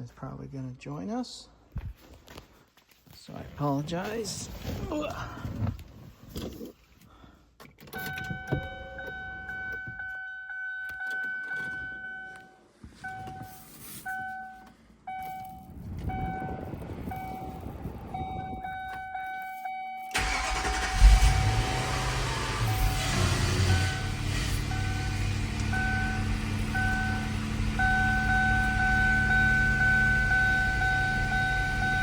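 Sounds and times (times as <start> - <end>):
car engine low rumble: 11.9 - 19.0, 20.2 - 32.0
car engine cranking and starting: 20.1 - 32.0.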